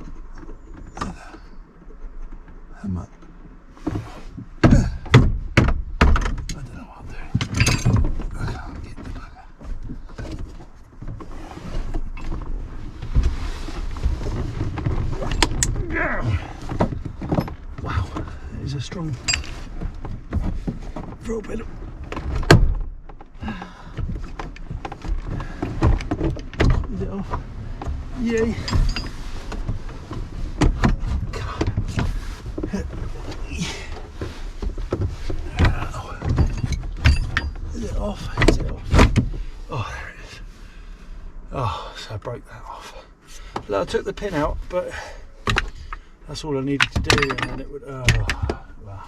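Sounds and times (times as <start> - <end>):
scraping rustle: 0.0 - 4.6, 6.5 - 23.4, 24.1 - 41.3
rubbing and knocking handling noise: 0.0 - 39.7, 43.4 - 49.0.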